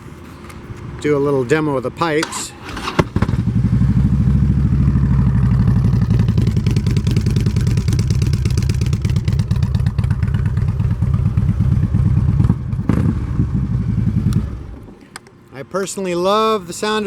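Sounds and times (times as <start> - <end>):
motorcycle exhaust pulsing: 2.7 - 15.0.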